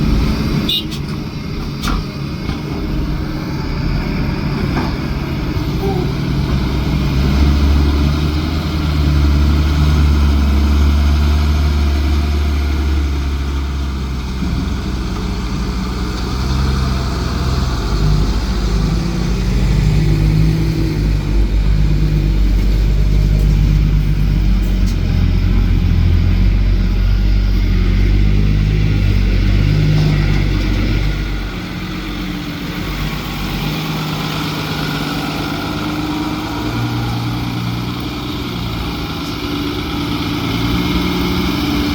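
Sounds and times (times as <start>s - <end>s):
heavy engine revving: 0.0s - 41.9s.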